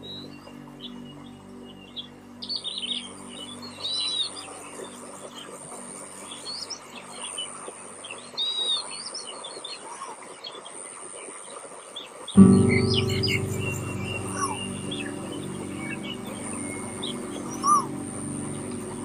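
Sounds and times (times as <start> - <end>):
soft background music: 0.0 - 8.8, 12.4 - 19.0
wild birds chirping: 11.9 - 19.0.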